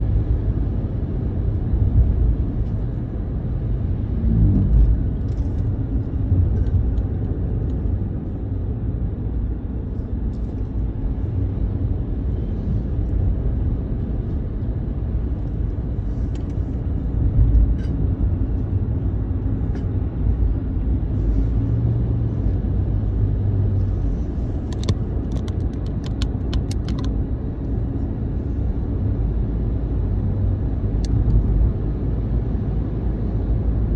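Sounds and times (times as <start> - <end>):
steady low rumble: 0.0 - 33.9
sharp clicks: 24.7 - 27.1.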